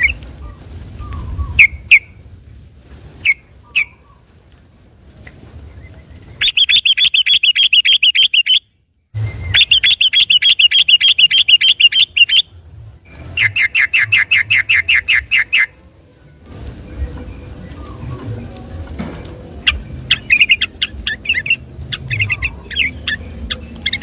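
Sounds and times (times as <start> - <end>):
bird singing rapid chirps: 5.7 - 15.8, 16.9 - 24.0.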